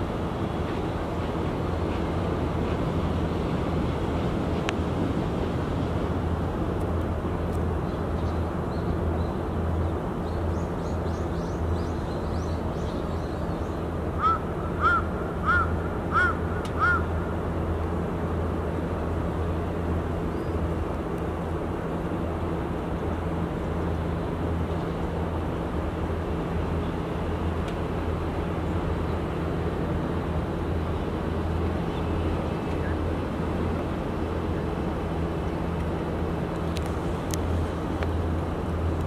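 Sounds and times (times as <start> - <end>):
bird calling: 14.2 - 17.1.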